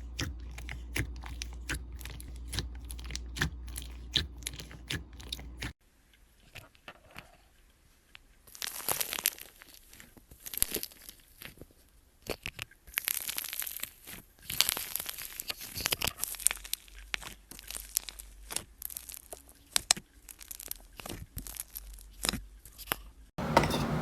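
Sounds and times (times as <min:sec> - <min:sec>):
slime crackling and popping: 0:08.4 - 0:23.1.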